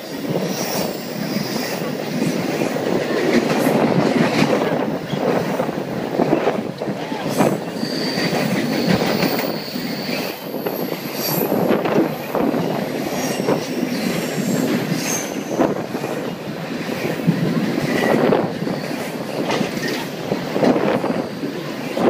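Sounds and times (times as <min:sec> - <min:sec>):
train wheels rumbling on rails: 0:00.0 - 0:22.0
high-pitched wheel squeals: 0:07.8 - 0:11.6.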